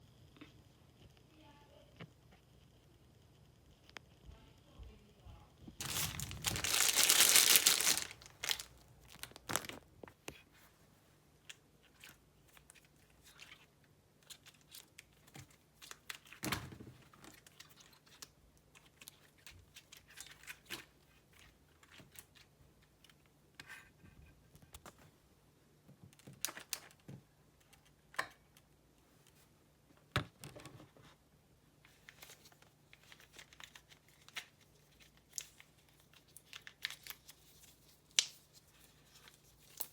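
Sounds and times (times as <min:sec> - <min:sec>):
plastic packaging crinkling and tearing: 0:05.8 - 0:09.9, 0:32.0 - 0:39.9.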